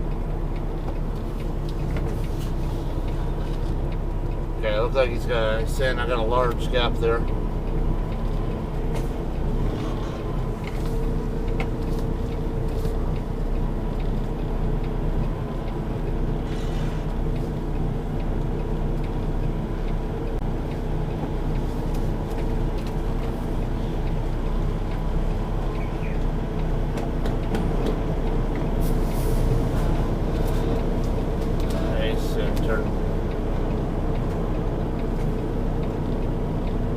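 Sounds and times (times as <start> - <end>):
truck diesel engine running: 0.0 - 36.9.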